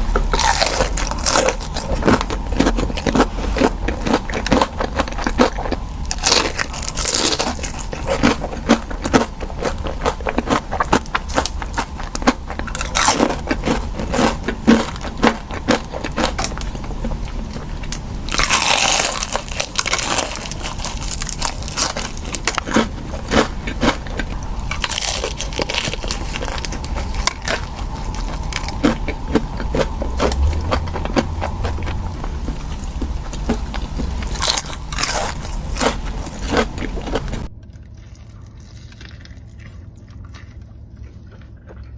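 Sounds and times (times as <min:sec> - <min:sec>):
crunchy food chewing: 0:00.0 - 0:41.9.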